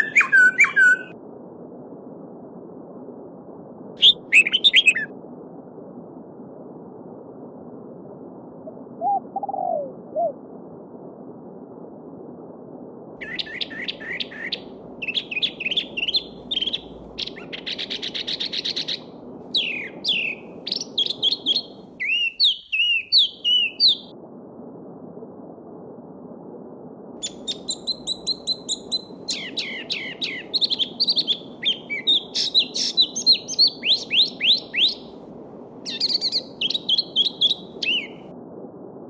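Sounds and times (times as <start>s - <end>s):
bird singing high trilling phrases: 0.0s - 1.1s, 4.0s - 5.1s, 13.2s - 24.1s, 27.2s - 35.1s, 35.9s - 38.2s.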